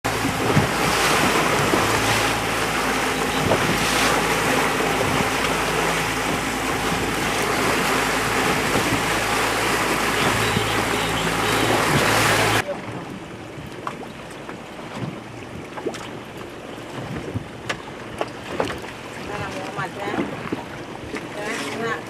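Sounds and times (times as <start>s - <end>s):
steady low hum: 0.0s - 12.6s
water rushing and splashing: 0.0s - 22.0s.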